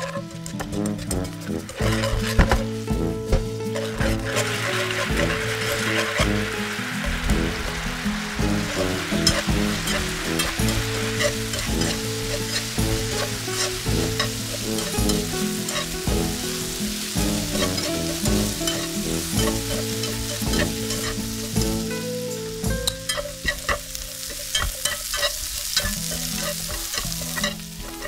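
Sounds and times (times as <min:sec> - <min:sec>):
background music: 0:00.0 - 0:28.0
chopsticks clicking and scraping pan: 0:00.0 - 0:28.0
sauce sizzling in a pan: 0:00.0 - 0:28.0.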